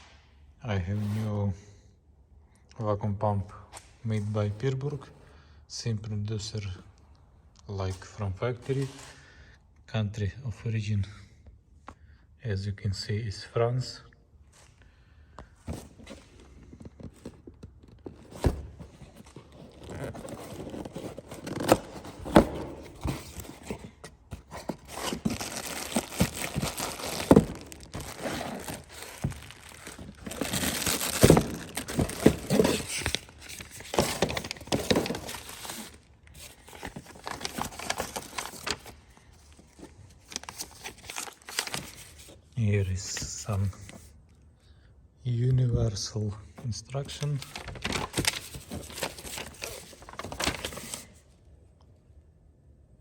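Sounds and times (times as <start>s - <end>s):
packaging crinkling and tearing: 16.1s - 42.3s, 47.2s - 51.2s.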